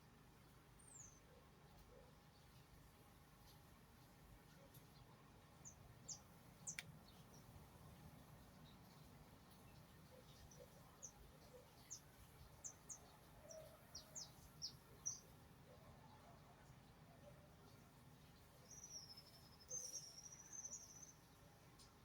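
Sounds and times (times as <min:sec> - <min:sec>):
small birds chirping: 0:00.8 - 0:15.8, 0:17.6 - 0:22.0
bird warbling song: 0:18.6 - 0:21.4.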